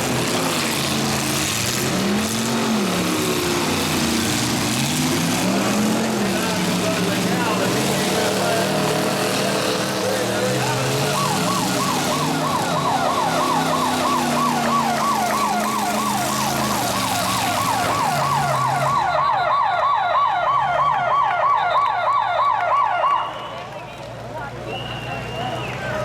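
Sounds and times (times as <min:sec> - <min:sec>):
electronic siren yelping: 0:10.1 - 0:23.3.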